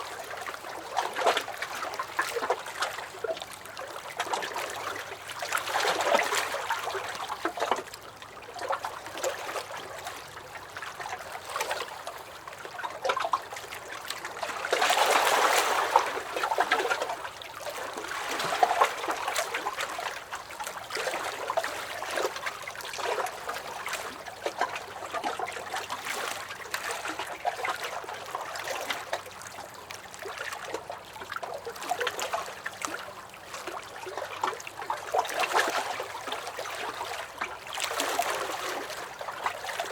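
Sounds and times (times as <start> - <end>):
waves lapping against a dock: 0.0 - 39.9
water splashing: 12.8 - 39.9.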